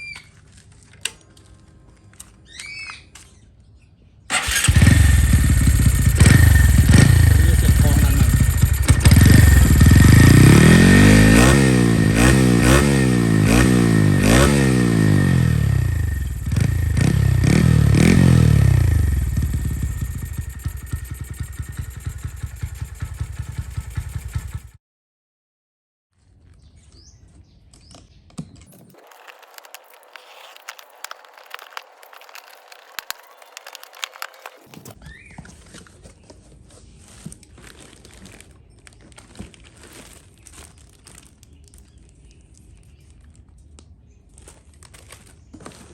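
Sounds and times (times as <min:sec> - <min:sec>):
motorcycle engine revving: 0:04.3 - 0:24.8.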